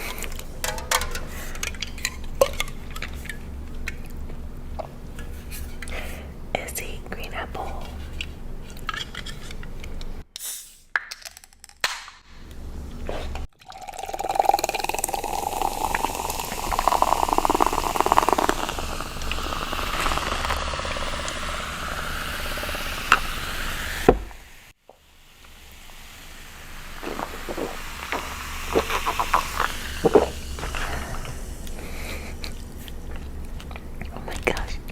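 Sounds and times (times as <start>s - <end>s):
drink pouring into container: 13.5s - 24.2s, 25.4s - 33.9s.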